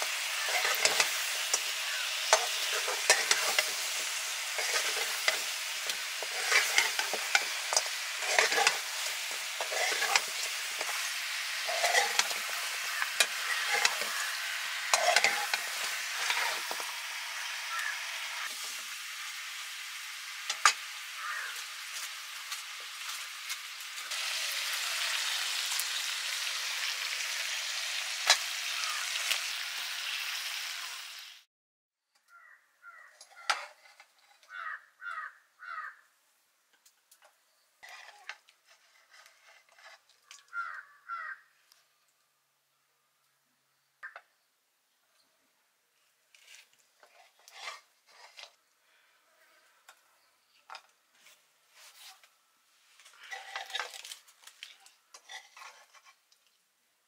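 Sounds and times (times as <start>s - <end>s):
utensil scraping against pan: 0.0s - 17.0s, 33.2s - 34.5s, 37.8s - 40.1s, 46.4s - 48.6s, 53.2s - 56.2s
chicken sizzling in hot oil: 0.0s - 31.5s, 37.8s - 41.4s, 47.0s - 48.5s, 52.9s - 56.4s.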